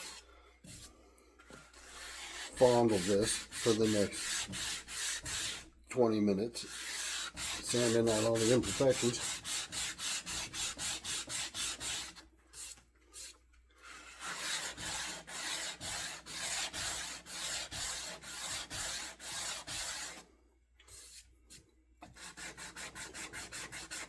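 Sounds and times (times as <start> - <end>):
sandpaper strokes on wood: 0.0 - 0.9, 1.7 - 5.7, 6.6 - 20.2, 22.1 - 24.0.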